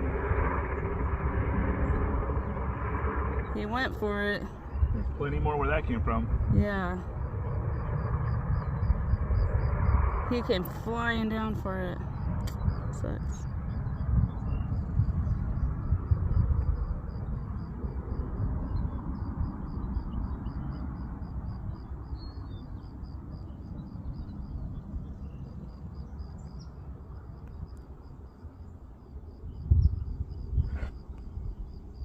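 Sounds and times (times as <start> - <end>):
low rumbling noise: 0.0 - 27.4.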